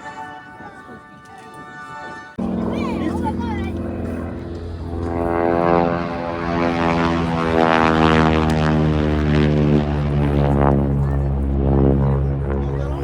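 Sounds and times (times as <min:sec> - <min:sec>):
propeller airplane flying past: 0:02.4 - 0:13.0.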